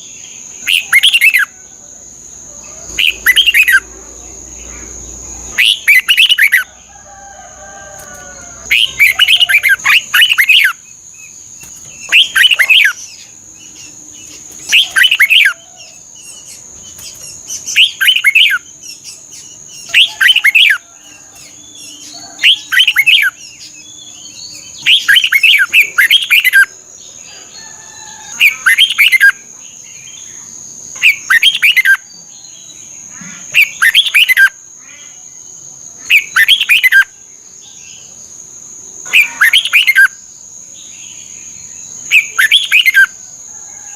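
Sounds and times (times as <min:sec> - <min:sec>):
bird singing warbling phrases: 0:00.0 - 0:01.7, 0:02.5 - 0:06.8, 0:08.6 - 0:27.5, 0:28.3 - 0:38.2, 0:39.0 - 0:43.2.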